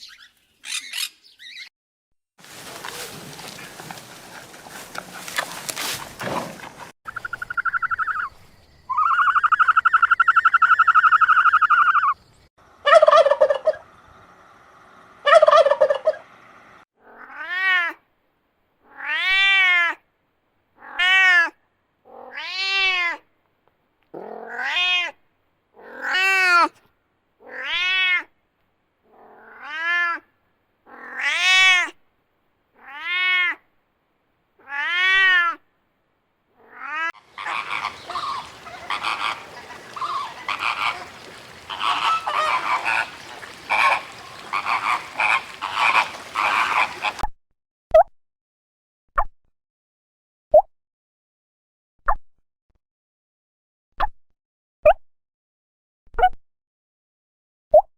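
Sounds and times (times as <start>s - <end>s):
rising and falling animal calls: 7.1s - 12.2s, 12.8s - 14.0s, 15.2s - 16.3s, 36.6s - 47.2s
long held animal call: 36.6s - 47.2s
short harsh animal calls: 37.2s - 47.2s.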